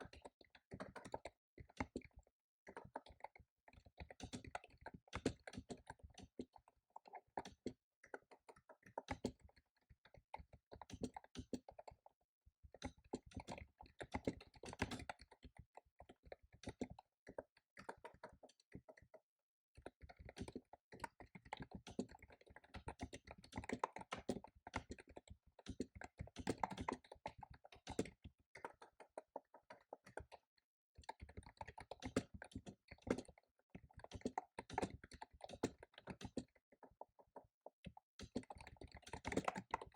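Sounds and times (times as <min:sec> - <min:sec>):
fast typing on keyboard: 0:10.7 - 0:12.0, 0:12.8 - 0:17.0, 0:19.8 - 0:39.9.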